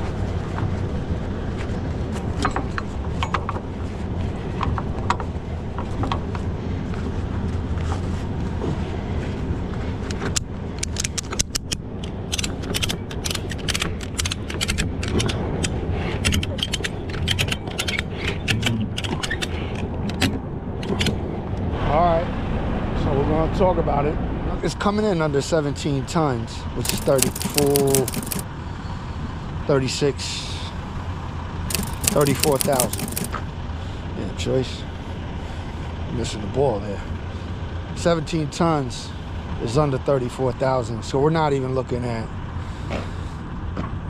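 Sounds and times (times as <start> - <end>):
winch ratchet pawl clicks: 26.8 - 28.4, 31.7 - 33.4.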